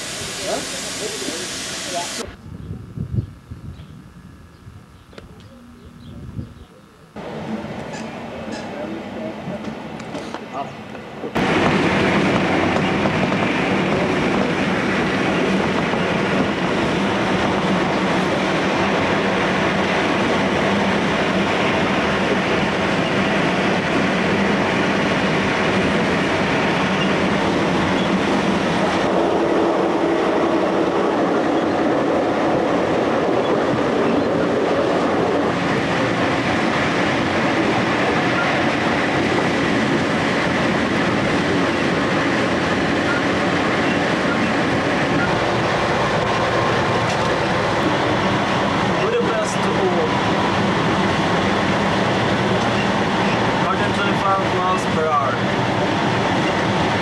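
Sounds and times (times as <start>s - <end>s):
train wheels rumbling on rail: 7.2s - 57.0s.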